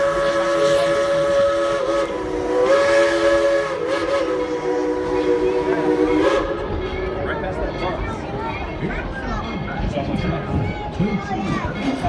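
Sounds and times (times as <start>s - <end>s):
steam locomotive chime whistle: 0.0s - 8.8s.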